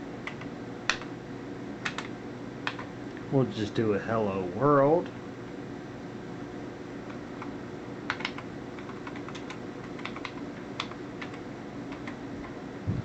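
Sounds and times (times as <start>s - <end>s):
steady low hum: 0.0s - 13.0s
keyboard key clicks: 1.8s - 2.1s, 8.1s - 12.2s.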